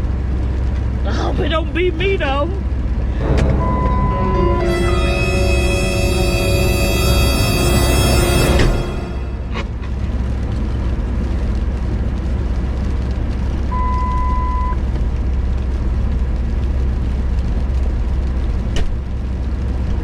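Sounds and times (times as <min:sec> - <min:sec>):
steady beep: 0:03.2 - 0:09.8.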